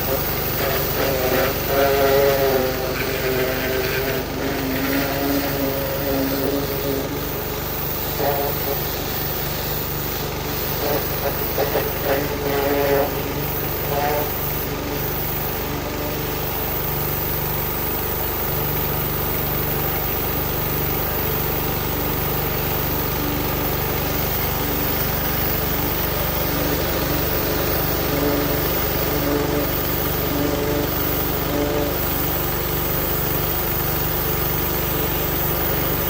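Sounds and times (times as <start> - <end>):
engine idling: 2.4 - 36.0.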